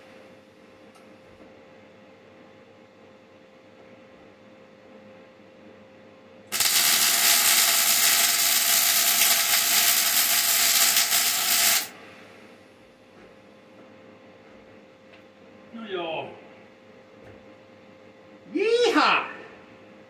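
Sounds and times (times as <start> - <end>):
welding arc hissing: 6.5 - 12.0.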